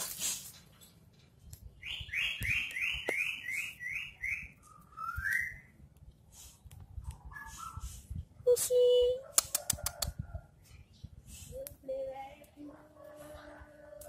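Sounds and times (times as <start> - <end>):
bird singing whistled notes: 1.8 - 5.8.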